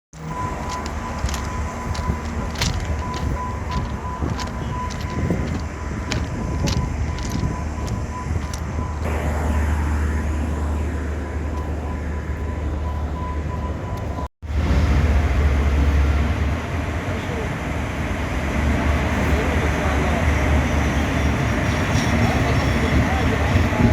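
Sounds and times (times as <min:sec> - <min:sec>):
train rumbling with clicks: 0:00.2 - 0:09.1, 0:14.0 - 0:23.9.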